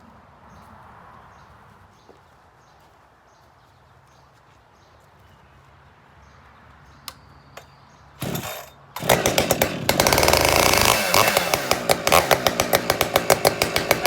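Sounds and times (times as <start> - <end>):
chainsaw engine starting and running: 8.2 - 14.0.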